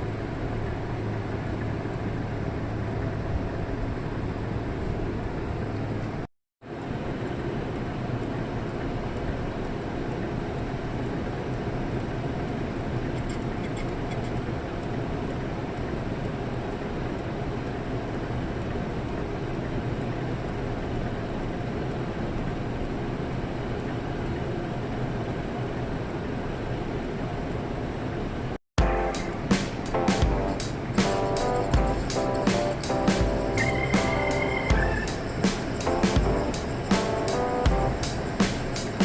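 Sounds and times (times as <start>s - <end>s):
car engine and road noise: 33.4s - 36.9s.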